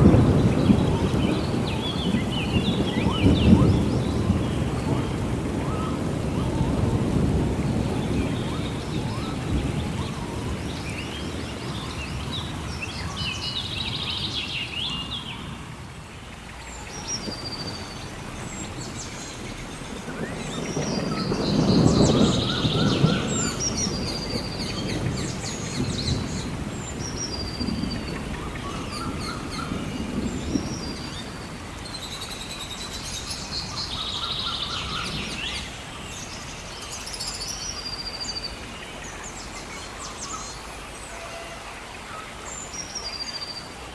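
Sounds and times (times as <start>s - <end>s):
thunder rumble: 0.0s - 41.6s
rain hiss: 0.0s - 43.9s
birds whistling and chirping: 16.8s - 43.7s.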